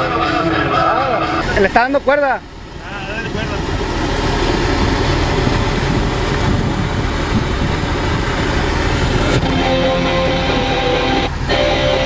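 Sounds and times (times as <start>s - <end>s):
outdoor noise: 0.0s - 12.0s
vehicle engine running: 0.0s - 12.0s
guitar music: 9.4s - 12.0s.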